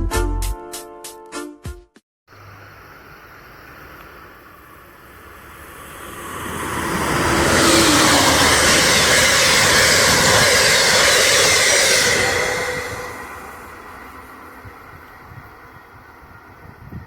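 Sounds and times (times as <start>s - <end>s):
train passing at speed: 4.4s - 17.0s
train wheels on rails: 5.0s - 17.0s.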